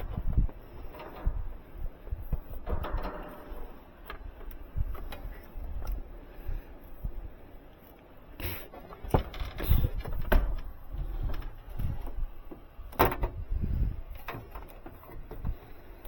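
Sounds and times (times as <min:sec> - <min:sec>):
knocks and bumps from handling: 0:08.8 - 0:13.4.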